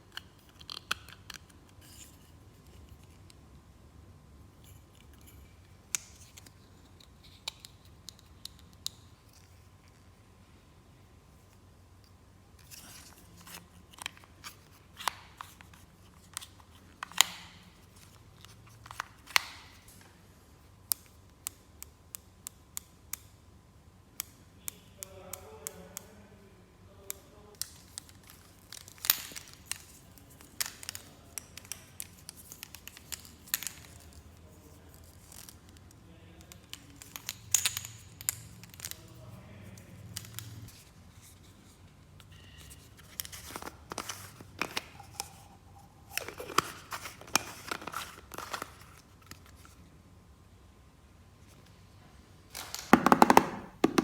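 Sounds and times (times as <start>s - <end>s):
packaging crinkling and tearing: 46.1s - 49.6s.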